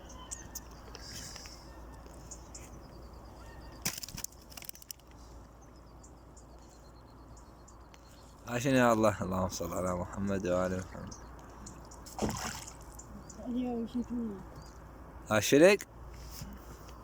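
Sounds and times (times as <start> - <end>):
sharp clicks and rattling: 3.8 - 5.2.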